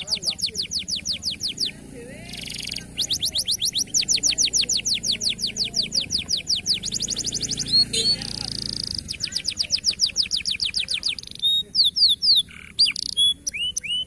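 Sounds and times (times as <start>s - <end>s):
canary trilling: 0.0s - 14.0s.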